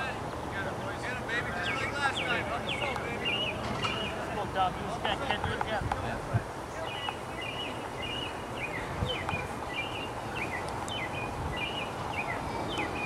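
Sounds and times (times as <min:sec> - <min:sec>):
outdoor background hiss: 0:00.0 - 0:13.0
songbird chirping: 0:01.4 - 0:04.4, 0:06.8 - 0:13.0.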